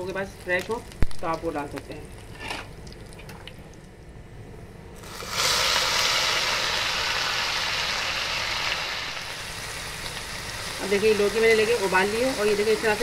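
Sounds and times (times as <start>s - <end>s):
faint sizzle of spices: 0.0s - 2.6s, 5.0s - 13.0s
vegetables sizzling in hot oil: 5.0s - 13.0s.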